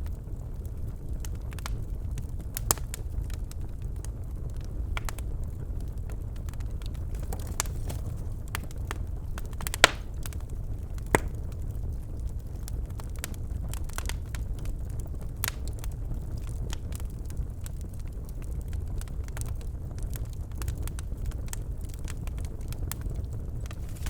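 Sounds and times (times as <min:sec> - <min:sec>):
fire crackling in a fireplace: 0:00.0 - 0:24.0
loud sharp pops: 0:09.6 - 0:10.2, 0:11.1 - 0:11.4.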